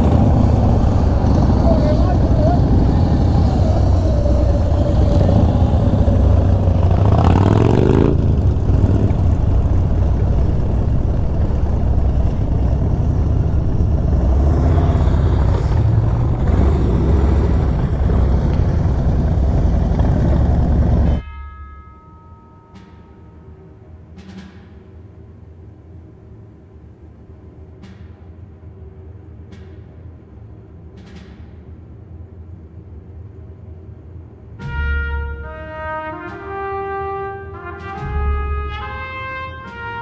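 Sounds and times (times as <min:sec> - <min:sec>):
motorcycle engine running: 0:00.0 - 0:21.2
road and wind noise: 0:00.0 - 0:21.2.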